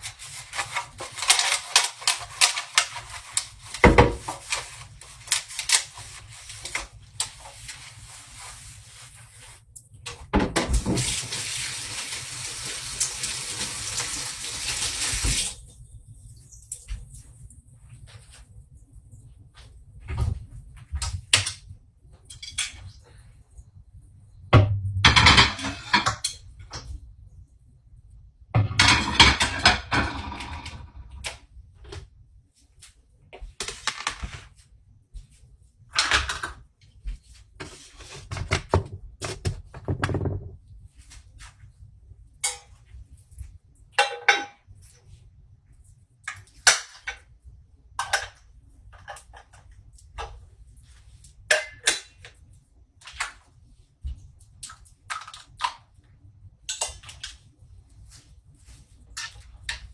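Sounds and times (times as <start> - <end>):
dishes and utensils clattering: 25.0 - 26.4, 28.6 - 31.2, 44.0 - 44.7, 51.5 - 52.2.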